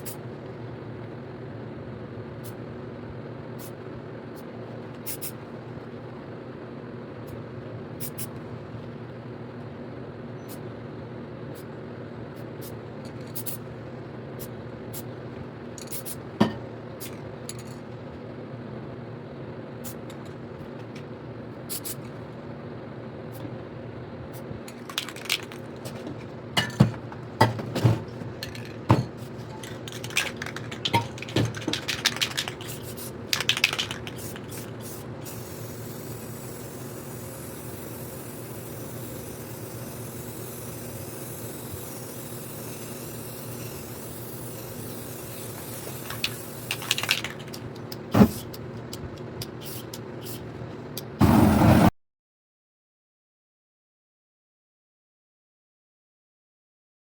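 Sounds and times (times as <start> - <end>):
steady low hum: 0.0 - 51.9
cans and tools knocking: 26.6 - 32.7
aerosol spray can hissing: 29.6 - 47.6, 49.6 - 50.5, 51.2 - 51.9.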